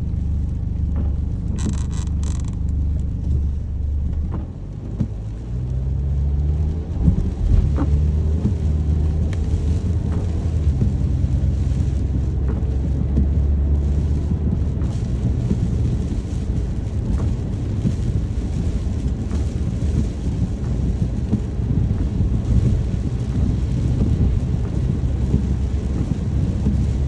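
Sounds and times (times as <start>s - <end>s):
low steady hum: 0.0s - 5.9s
deep continuous rumble: 0.0s - 27.0s
rain: 0.0s - 27.0s.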